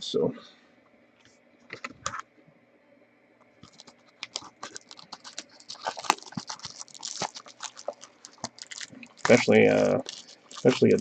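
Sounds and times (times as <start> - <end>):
trading cards flipping: 3.6 - 11.0.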